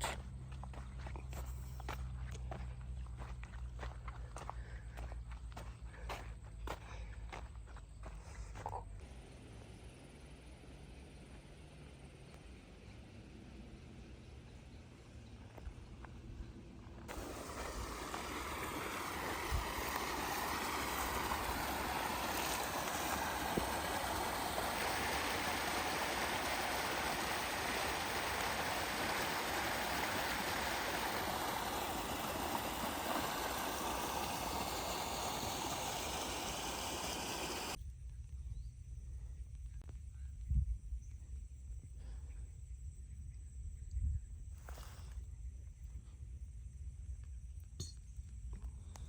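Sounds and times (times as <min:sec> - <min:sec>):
running water rushing: 0:17.1 - 0:37.8.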